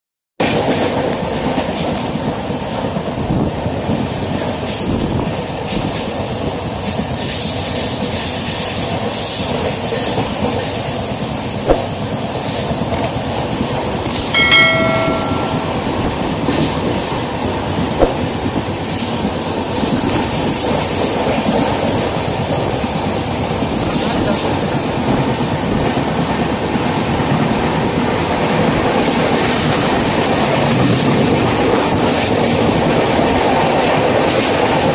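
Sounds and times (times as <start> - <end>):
sharp clicks: 14.1 - 15.0
short chime: 14.1 - 16.2
train wheels rumbling on track: 16.9 - 34.9.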